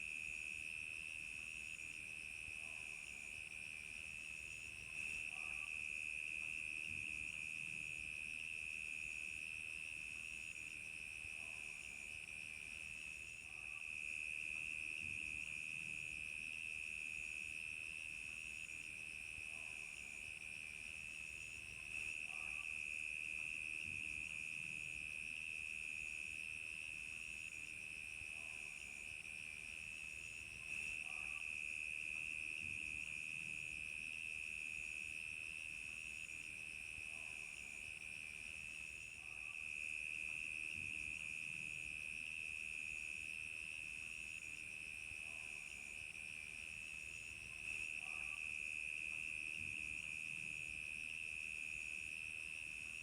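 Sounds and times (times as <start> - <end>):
crickets chirping: 0.1 - 53.0.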